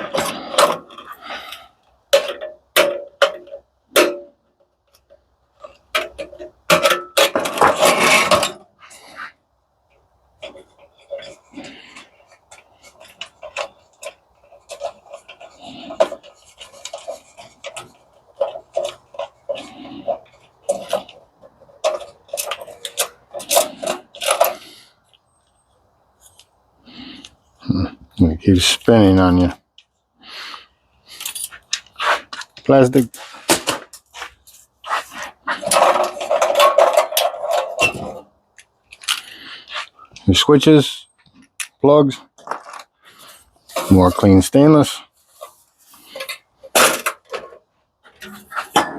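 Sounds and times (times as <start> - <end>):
tools and parts clinking: 0.0 - 9.3, 10.3 - 26.5, 31.1 - 48.9.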